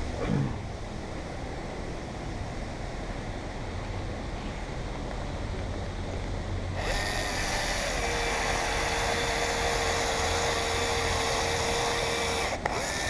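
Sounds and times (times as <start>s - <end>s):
caulking gun motor whining: 6.8s - 13.0s.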